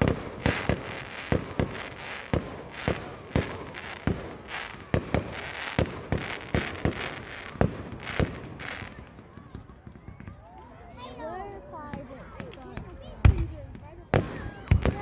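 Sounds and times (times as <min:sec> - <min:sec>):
fireworks crackling hiss: 0:00.0 - 0:09.3
fireworks bangs: 0:00.0 - 0:10.8, 0:11.9 - 0:15.0.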